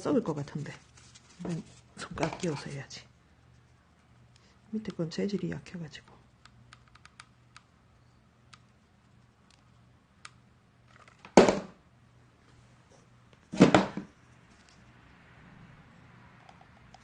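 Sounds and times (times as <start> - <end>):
paper rustling scrapes: 0.5 - 2.8.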